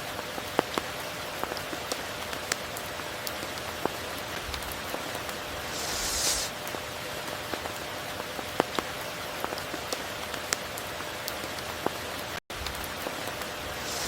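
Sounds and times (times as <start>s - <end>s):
raindrops ticking close by: 0.0s - 5.6s, 6.6s - 13.8s
heavy rain: 11.0s - 14.0s.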